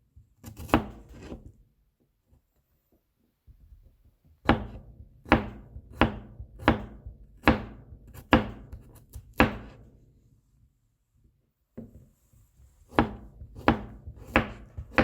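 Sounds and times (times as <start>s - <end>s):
knife chopping on cutting board: 0.4s - 1.5s, 4.4s - 9.8s, 12.9s - 15.0s.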